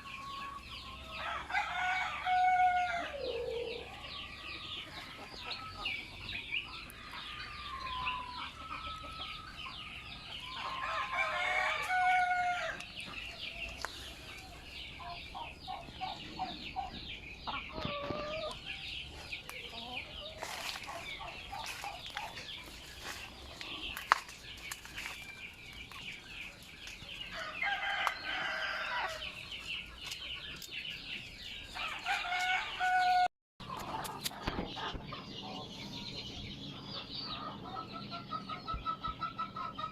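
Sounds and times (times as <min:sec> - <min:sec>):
roosters crowing: 0:00.0 - 0:24.2, 0:27.2 - 0:29.6, 0:31.6 - 0:33.3
hens clucking: 0:00.0 - 0:31.2, 0:32.1 - 0:39.9.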